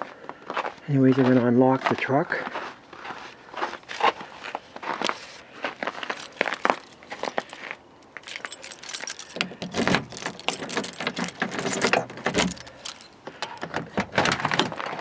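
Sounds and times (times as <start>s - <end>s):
keys jangling: 6.0s - 15.0s.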